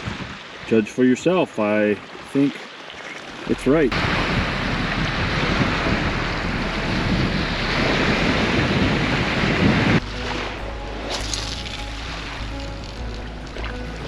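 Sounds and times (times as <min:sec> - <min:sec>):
waves on water: 0:00.0 - 0:14.0
wind buffeting microphone: 0:03.4 - 0:14.0.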